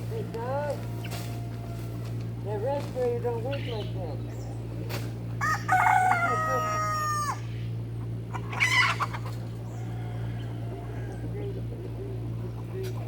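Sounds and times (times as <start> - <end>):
steady low hum: 0.0 - 13.0
rooster crowing: 0.8 - 2.2, 5.4 - 7.5, 8.5 - 11.4.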